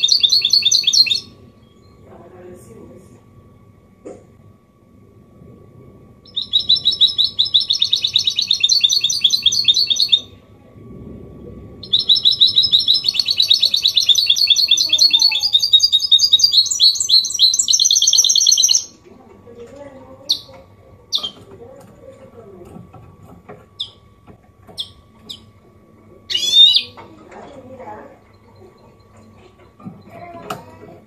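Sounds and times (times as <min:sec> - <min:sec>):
finch singing twittering song: 0:00.0 - 0:02.1, 0:06.2 - 0:10.3, 0:11.8 - 0:19.0, 0:23.8 - 0:24.0, 0:24.7 - 0:25.5, 0:26.3 - 0:27.0.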